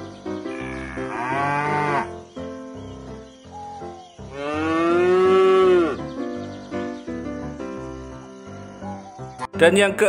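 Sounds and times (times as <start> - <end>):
light background music: 0.0 - 10.0
cow mooing: 0.5 - 2.1, 4.3 - 6.0.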